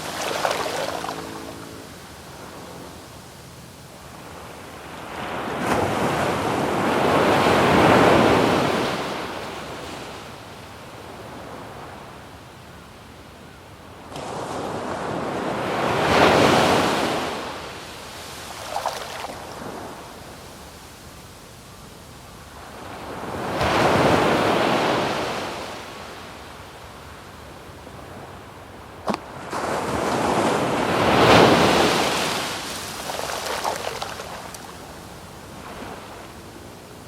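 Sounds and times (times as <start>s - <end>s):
waves breaking on sand: 0.0s - 10.3s, 14.0s - 20.7s, 22.6s - 26.5s, 29.0s - 36.8s
surf hiss: 0.0s - 12.6s, 14.0s - 37.0s.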